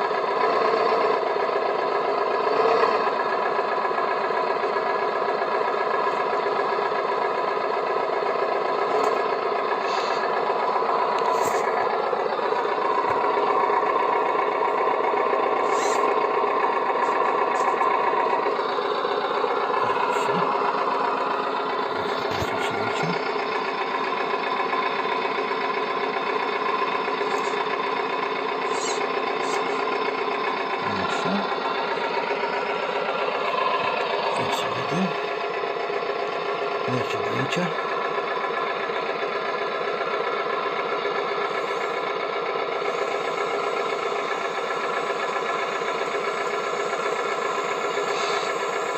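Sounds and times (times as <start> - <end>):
small electric gear motor whining: 15.6 - 16.2, 27.1 - 27.7, 28.6 - 29.9, 42.9 - 48.9.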